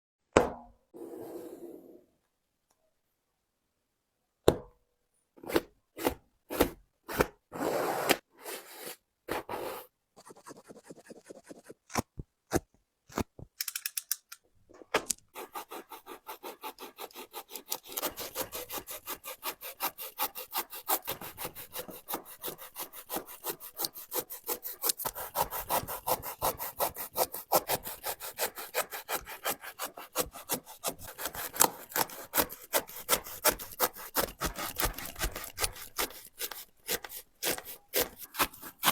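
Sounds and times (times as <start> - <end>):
saw cutting through shoe: 15.4 - 38.9.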